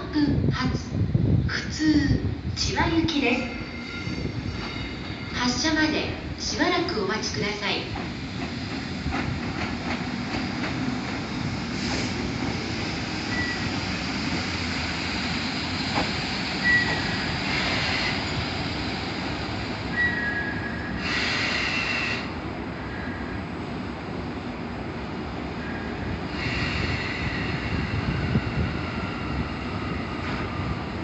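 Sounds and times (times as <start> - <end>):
train rumbling on tracks: 0.0 - 31.0
wheel squeals: 16.6 - 18.4.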